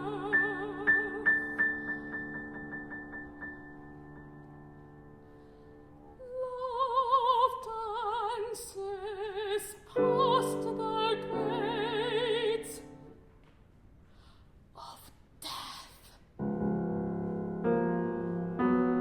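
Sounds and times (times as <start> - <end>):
piano chords: 0.0 - 6.0, 10.0 - 13.2, 16.4 - 19.0.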